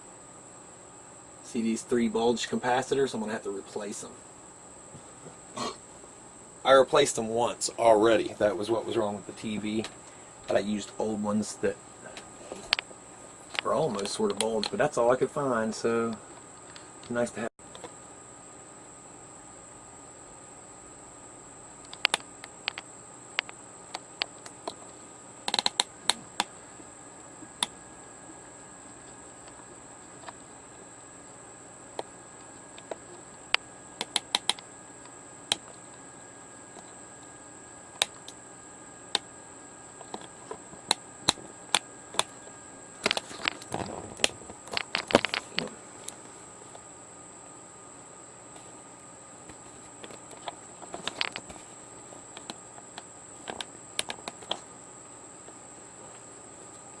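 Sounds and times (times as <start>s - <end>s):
faint high-pitched whine: 0.0s - 57.0s
clicks and taps handling parts: 43.0s - 46.8s, 49.5s - 51.6s.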